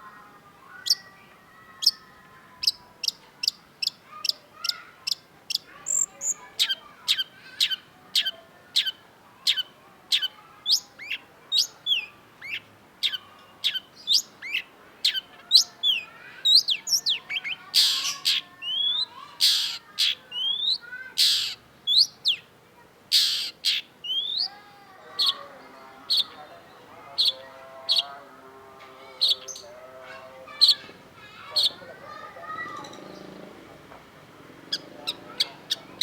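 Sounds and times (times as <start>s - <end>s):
low chattering warble: 0.0s - 36.0s
shrike singing: 5.1s - 9.6s, 23.1s - 36.0s
harsh rasping bird notes: 25.2s - 36.0s.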